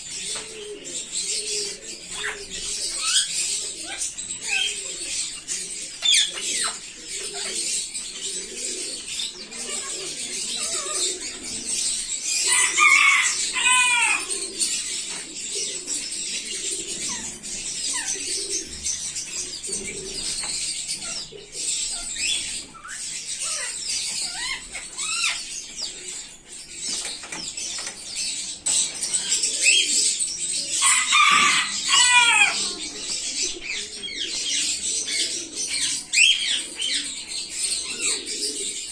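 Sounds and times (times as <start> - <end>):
parrots chattering: 8.5 - 14.8, 16.6 - 25.8, 29.2 - 37.1.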